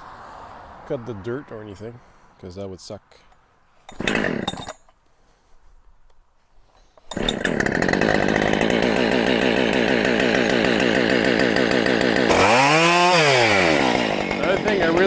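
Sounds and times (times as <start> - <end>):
chainsaw engine running: 3.9 - 4.6, 7.1 - 15.0.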